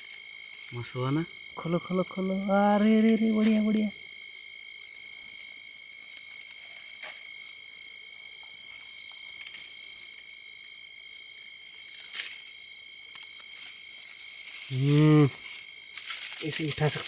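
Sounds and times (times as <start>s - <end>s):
frogs calling: 0.0s - 5.4s.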